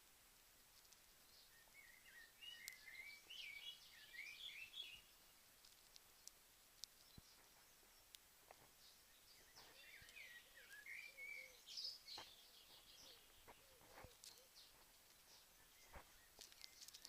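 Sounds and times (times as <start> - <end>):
faint ticks: 0.0 - 1.1, 2.5 - 3.0, 5.6 - 8.8, 12.1 - 17.0
background hiss: 0.0 - 17.0
bird song: 0.8 - 17.0.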